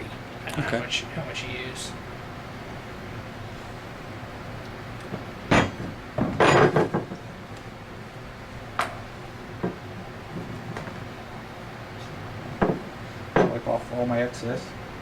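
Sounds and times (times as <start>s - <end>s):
tools clattering: 5.5s - 7.1s
tools knocking on workbench: 5.5s - 7.2s, 12.6s - 13.6s.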